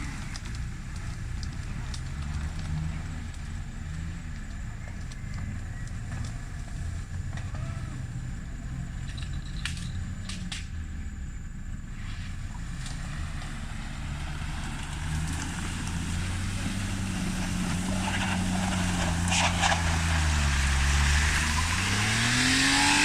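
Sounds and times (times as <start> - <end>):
truck engine at low revs: 0.0 - 23.0.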